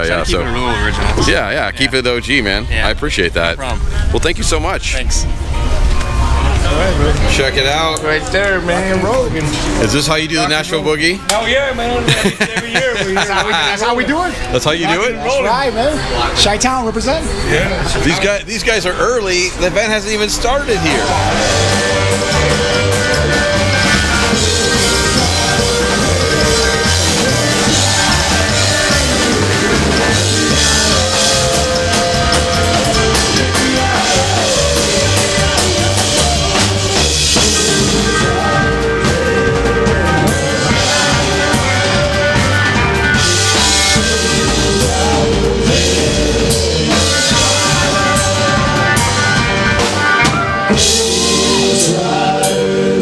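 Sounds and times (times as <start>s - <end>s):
rockabilly band music: 0.0s - 2.4s, 5.2s - 15.0s, 18.0s - 53.0s
driving bass line: 0.0s - 3.6s, 20.4s - 53.0s.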